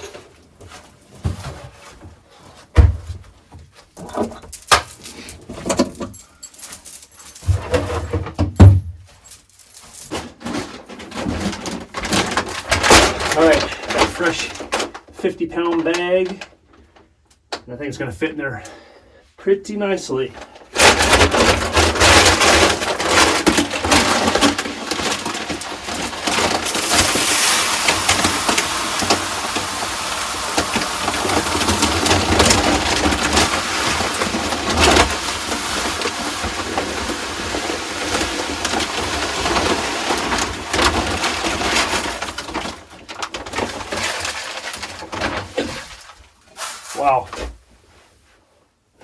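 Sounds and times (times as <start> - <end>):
grain pouring into feeder: 20.8 - 45.8.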